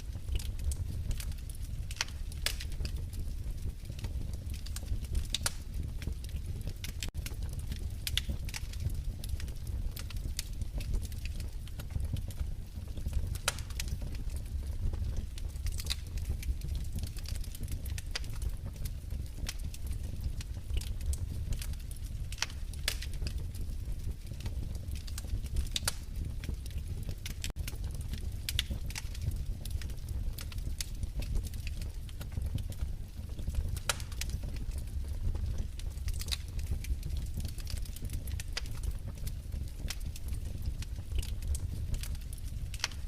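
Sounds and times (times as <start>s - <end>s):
fireplace fire crackling: 0.0s - 43.0s.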